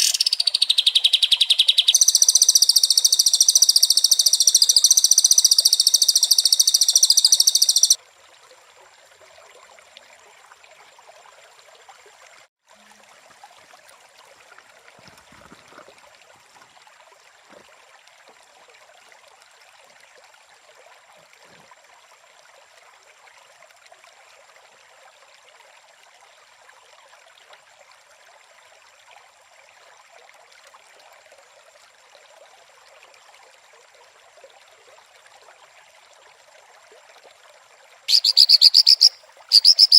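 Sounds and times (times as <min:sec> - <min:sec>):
thin steady insect-like tone: 0:00.0 - 0:13.0, 0:27.5 - 0:39.9.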